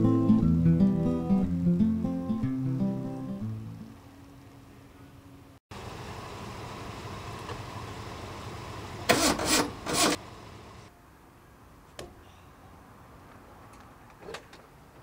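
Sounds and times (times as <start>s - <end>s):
vehicle engine running: 5.7s - 9.1s.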